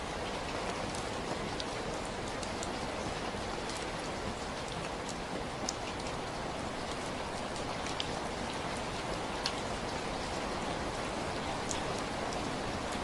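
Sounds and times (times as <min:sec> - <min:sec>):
raindrops dripping close by: 0:00.0 - 0:13.0
steady rainfall hiss: 0:00.0 - 0:13.0.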